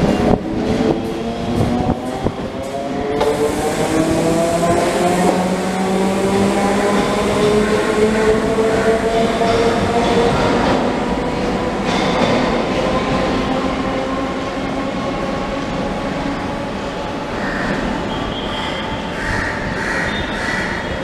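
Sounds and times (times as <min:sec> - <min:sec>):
wheels rumbling on rails: 0:00.0 - 0:21.0.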